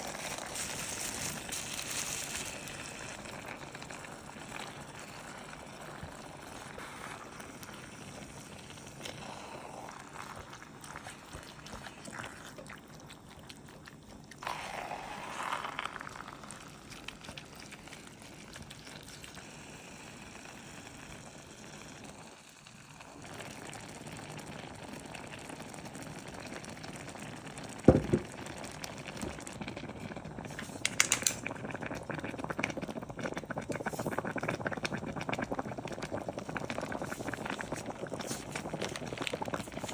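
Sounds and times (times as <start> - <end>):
utensils and cookware handled: 30.8 - 31.4.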